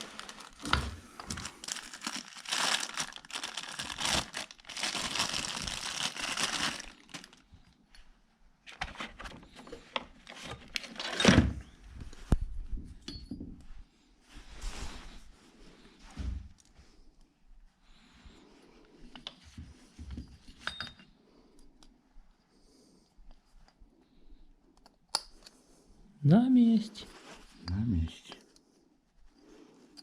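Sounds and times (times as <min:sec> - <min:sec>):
packaging crinkling and tearing: 0:00.0 - 0:07.5, 0:10.2 - 0:11.2.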